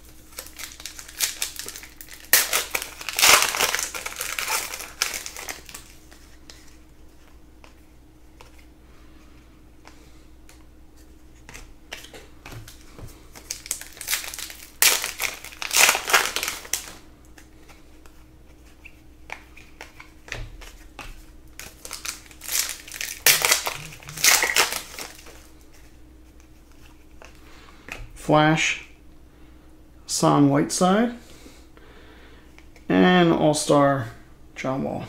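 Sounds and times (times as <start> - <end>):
foil wrapper crinkling: 0.0 - 6.8, 11.9 - 17.0, 18.8 - 26.0.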